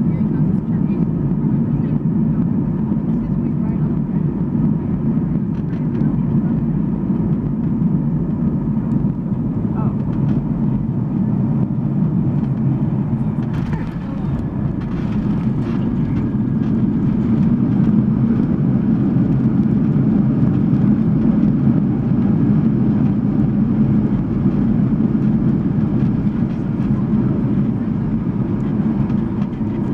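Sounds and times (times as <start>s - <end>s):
jet engines rumbling: 0.0s - 29.9s
rushing air: 11.6s - 19.8s.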